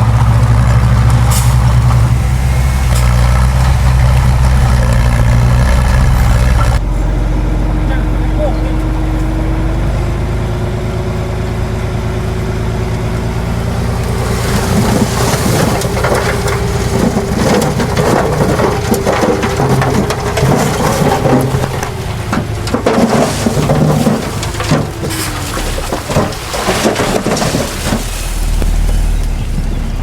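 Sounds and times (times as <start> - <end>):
soil and stones crunching: 0.0 - 6.8, 13.4 - 30.0
diesel earthmoving machine running: 0.0 - 30.0.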